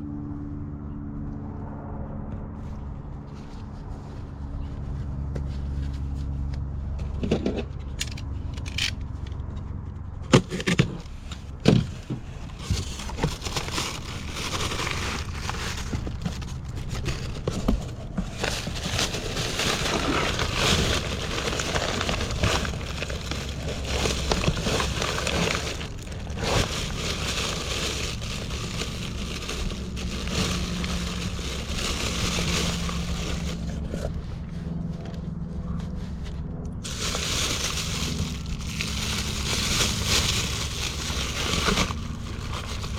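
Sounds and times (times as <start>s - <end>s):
steady low hum: 11.0s - 42.9s
plastic bags crinkling: 12.8s - 33.9s, 36.8s - 42.9s.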